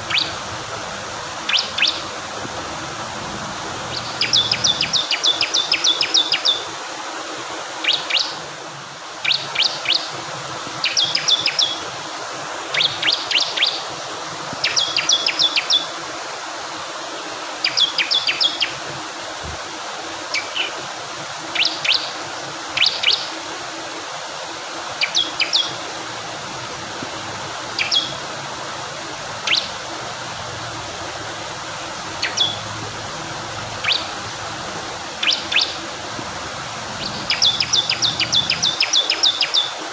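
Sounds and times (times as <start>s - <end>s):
flowing water rushing: 0.0s - 39.9s
bird singing sharp high notes: 37.0s - 39.7s.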